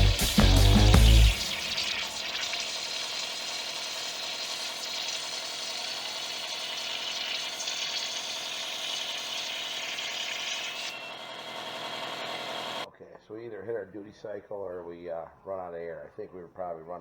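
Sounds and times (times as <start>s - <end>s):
plasma torch cutting steel: 0.0s - 12.9s.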